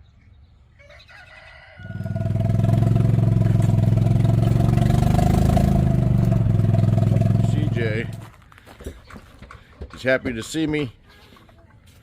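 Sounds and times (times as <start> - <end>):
engine starting and running: 1.9 - 10.5.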